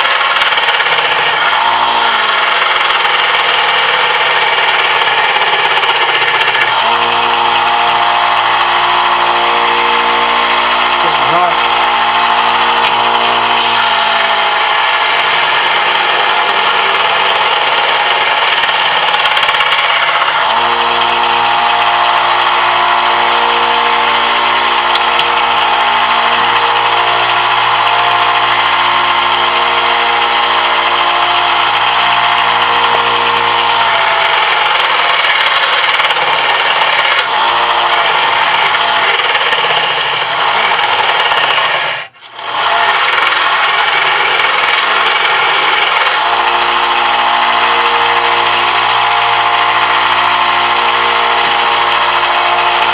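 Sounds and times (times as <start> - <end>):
power tool working brass: 0.0 - 52.9.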